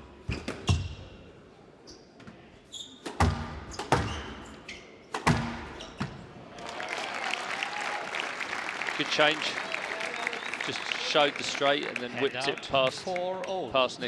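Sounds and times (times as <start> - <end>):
shoes squeaking on court floor: 1.8 - 6.3
squash ball cracks: 3.0 - 4.4, 5.1 - 6.0
applause: 6.6 - 13.6.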